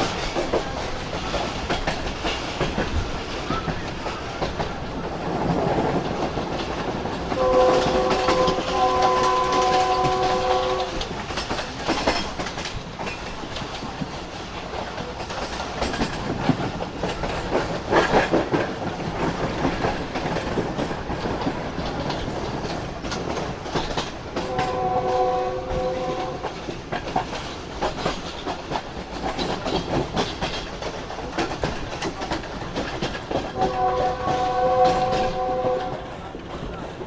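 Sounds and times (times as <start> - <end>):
train wheels clattering: 0.0 - 37.0
train horn: 7.3 - 11.2, 24.3 - 26.7, 33.4 - 36.4.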